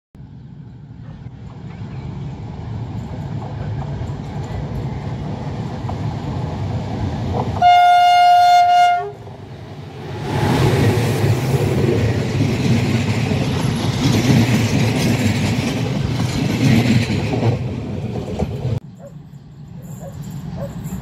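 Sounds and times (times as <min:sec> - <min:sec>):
locomotive rumbling: 0:00.4 - 0:21.0
train horn blast: 0:07.6 - 0:09.2.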